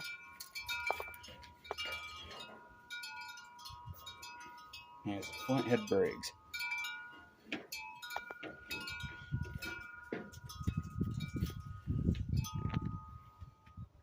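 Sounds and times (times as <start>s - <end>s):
wind chimes ringing: 0.0s - 14.0s.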